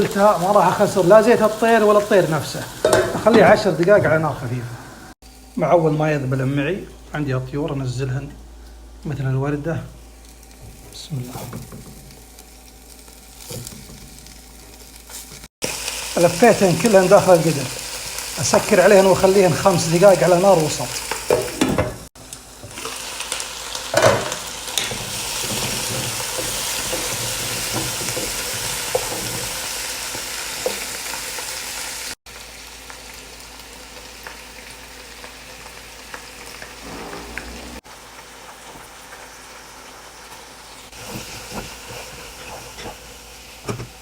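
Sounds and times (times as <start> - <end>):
food sizzling in a pot: 0.0 - 5.6, 9.9 - 44.0
sharp knock: 36.8 - 37.8.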